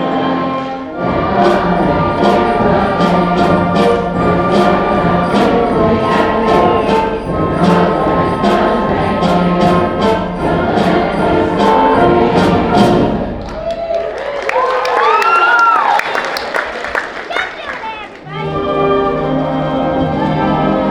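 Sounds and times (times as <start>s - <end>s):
band playing held chords: 0.0s - 13.4s
steady percussion beat: 1.2s - 13.4s.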